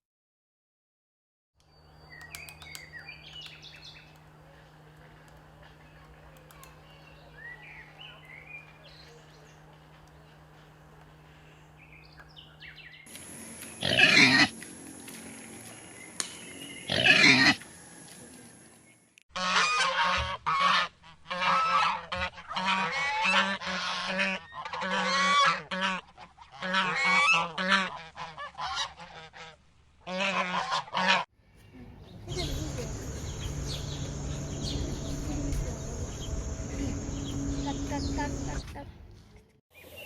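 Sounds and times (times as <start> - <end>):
loud animal calls: 13.8 - 14.5, 16.9 - 17.6, 32.3 - 38.6.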